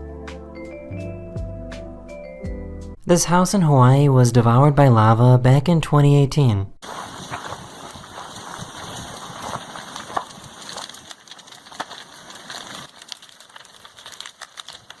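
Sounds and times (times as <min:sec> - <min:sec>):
lava crackling and crunching: 0:06.8 - 0:15.0.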